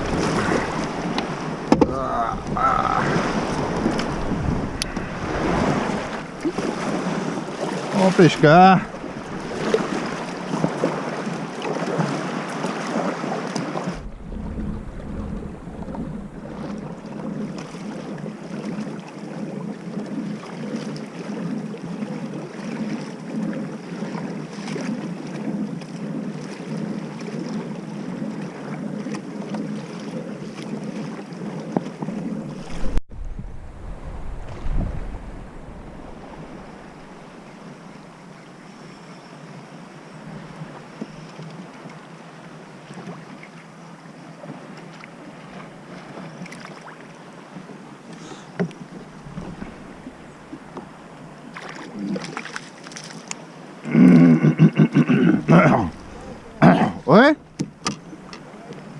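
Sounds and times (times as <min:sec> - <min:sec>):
wind buffeting microphone: 0:00.0 - 0:11.4, 0:13.8 - 0:18.4, 0:32.0 - 0:38.2, 0:48.7 - 0:51.5, 0:55.3 - 0:58.9
water sloshing around kayak: 0:00.0 - 0:58.9.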